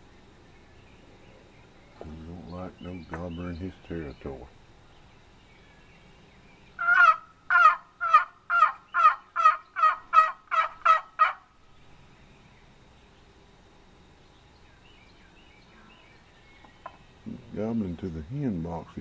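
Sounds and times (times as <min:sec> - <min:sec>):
turkey box call rasping: 0:06.8 - 0:11.5.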